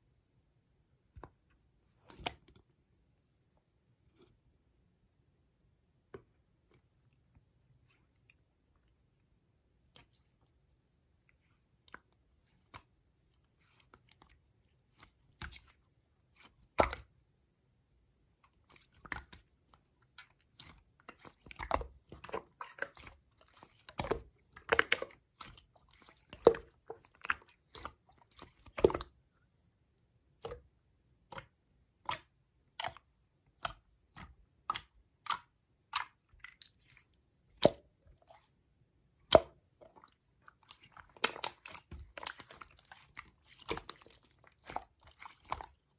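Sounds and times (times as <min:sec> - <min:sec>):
slime clicking and popping: 0:39.3 - 0:39.6.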